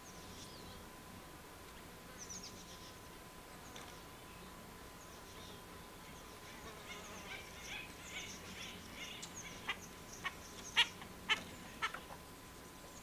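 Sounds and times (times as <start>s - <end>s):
birds chirping softly: 0.0s - 1.0s, 1.6s - 13.0s
harsh jay calls: 6.9s - 12.0s.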